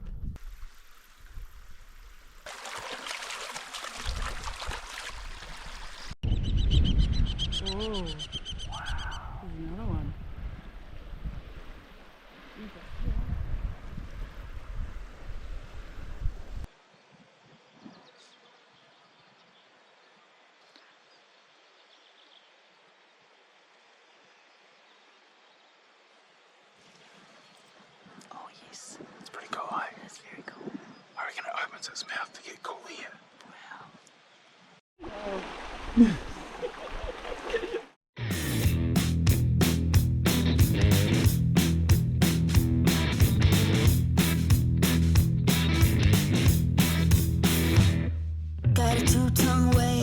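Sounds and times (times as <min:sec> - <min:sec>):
faint outdoor hiss: 0:00.0 - 0:06.1, 0:09.4 - 0:37.9
stream running over stones: 0:00.4 - 0:06.2, 0:16.6 - 0:29.3, 0:33.2 - 0:38.0
loud birdsong: 0:05.6 - 0:09.4.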